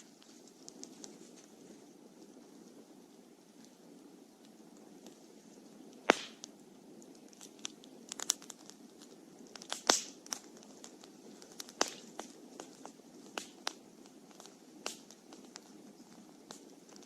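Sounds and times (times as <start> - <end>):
campfire crackling: 0.0 - 17.0
low steady hiss: 0.0 - 17.0
sharp fire pops: 4.4 - 17.0.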